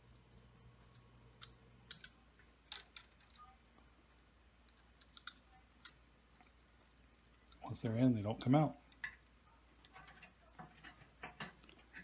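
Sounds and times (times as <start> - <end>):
faint clicks and taps: 4.6 - 12.0.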